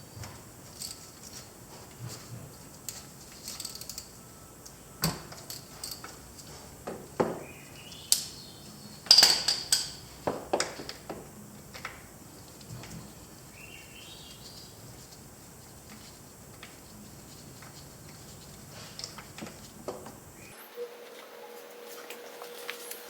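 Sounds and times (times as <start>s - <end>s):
wrench clinking on metal: 2.9s - 4.2s, 5.3s - 6.2s, 9.0s - 10.1s.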